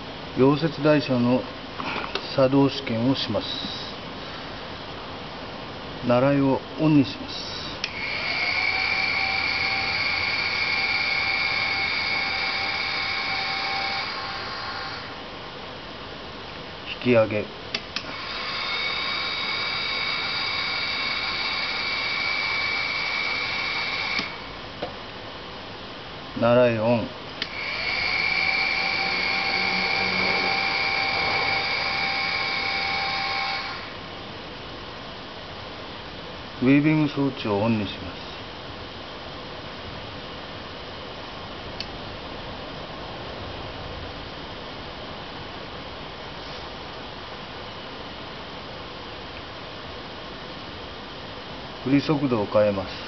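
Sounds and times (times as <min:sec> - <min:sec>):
drive motor whining: 0:07.8 - 0:15.2, 0:18.0 - 0:24.6, 0:27.4 - 0:34.0.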